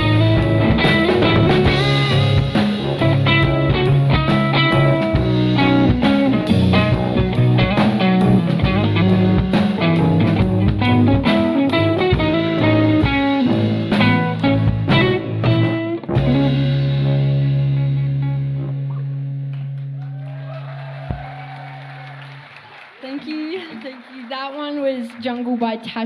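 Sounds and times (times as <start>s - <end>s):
steady drum beat: 0.0s - 17.8s
picked guitar lines: 0.0s - 19.9s.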